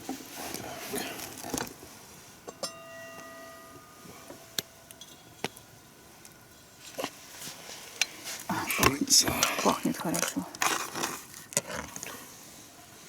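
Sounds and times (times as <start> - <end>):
struck dish ringing: 2.5 - 5.6
tableware clinking: 2.5 - 5.6.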